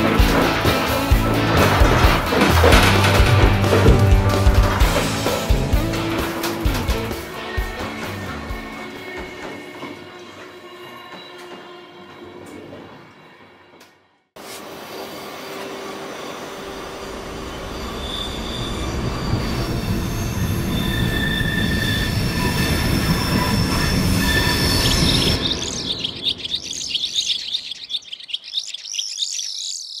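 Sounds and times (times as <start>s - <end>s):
train rumble: 0.0s - 13.9s, 15.6s - 27.2s
high-pitched wheel squeal: 15.0s - 26.9s.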